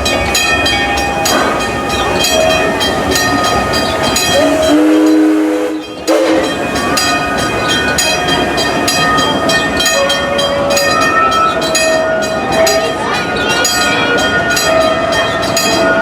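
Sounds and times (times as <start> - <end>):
train running noise: 0.0 - 16.0
locomotive whistle: 4.0 - 6.8.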